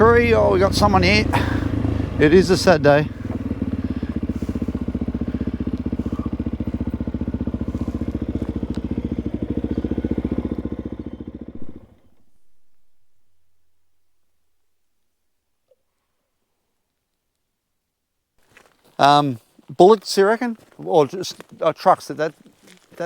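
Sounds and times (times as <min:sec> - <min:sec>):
motorcycle engine idling: 0:00.0 - 0:14.7.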